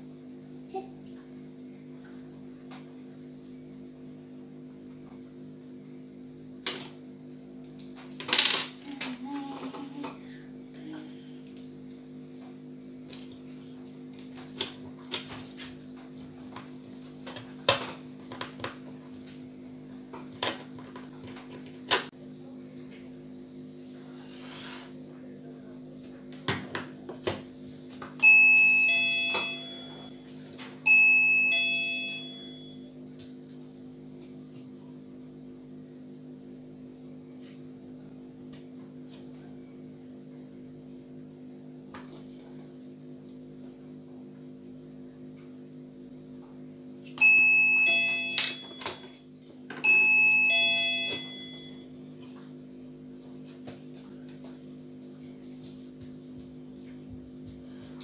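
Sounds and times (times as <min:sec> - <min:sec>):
two-note doorbell chime: 0:28.2 - 0:30.2, 0:30.9 - 0:32.9, 0:47.2 - 0:49.2, 0:49.8 - 0:51.9.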